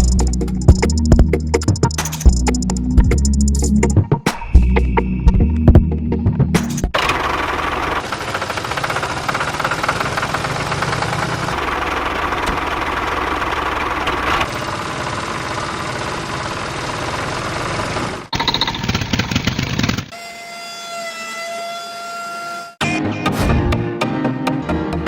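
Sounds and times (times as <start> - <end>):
mini tractor engine knocking: 6.9 - 20.1.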